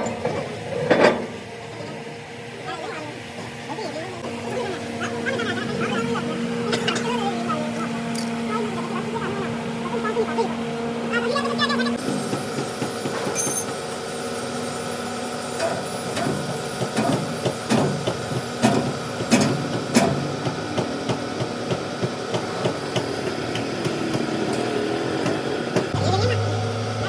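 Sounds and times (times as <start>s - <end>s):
steady mechanical hum: 0.0s - 27.0s
tools striking metal: 13.2s - 13.7s.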